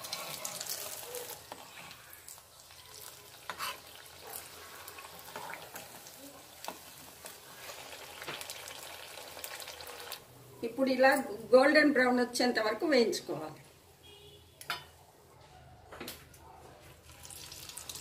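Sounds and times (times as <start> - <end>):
food deep-frying in oil: 0.0 - 10.7, 17.0 - 18.0
spatula scraping pan: 3.5 - 4.0.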